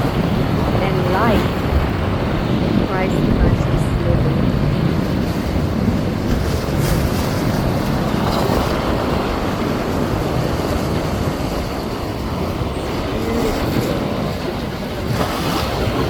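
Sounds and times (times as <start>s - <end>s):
surf washing over rocks: 0.0s - 16.0s
wind rumbling on microphone: 0.0s - 16.0s.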